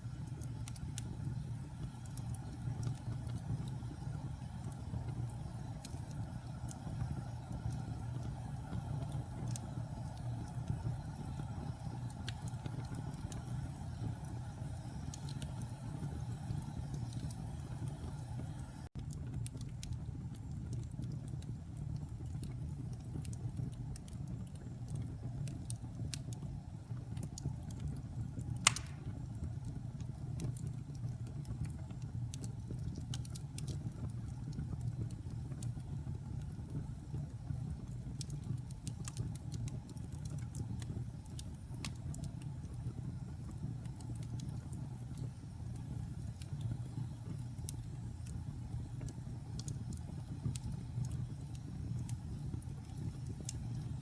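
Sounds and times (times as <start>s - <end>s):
fire crackling: 0.0s - 54.0s
fire rumbling: 0.0s - 54.0s
loud pop: 28.7s - 29.1s.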